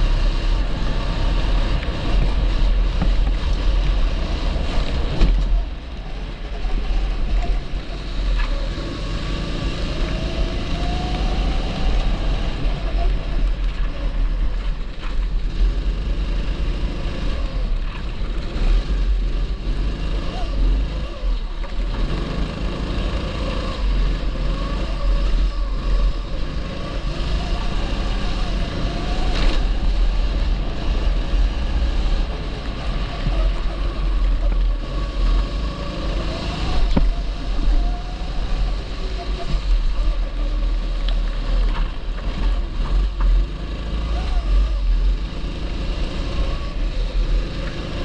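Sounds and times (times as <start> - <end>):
heavy low rumble: 0.0 - 15.6
kart engine running: 0.0 - 48.0.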